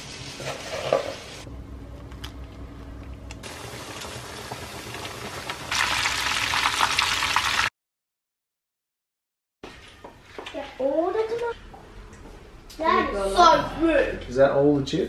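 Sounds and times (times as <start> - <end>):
steaks sizzling in hot oil: 3.4 - 7.7.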